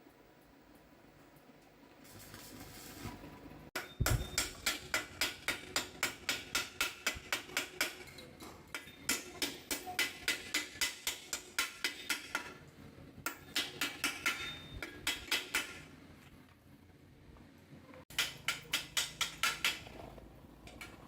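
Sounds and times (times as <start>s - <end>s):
hammer striking metal: 3.8s - 12.6s, 13.3s - 15.9s, 18.1s - 19.9s.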